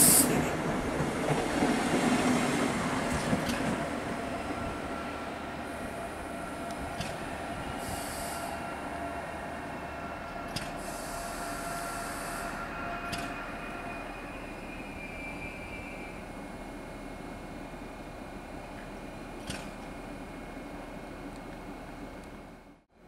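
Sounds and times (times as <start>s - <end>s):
air hisses: 0.0s - 0.4s, 7.8s - 8.6s, 10.7s - 12.6s
train rumble: 0.0s - 22.9s
high train whine: 0.0s - 23.0s.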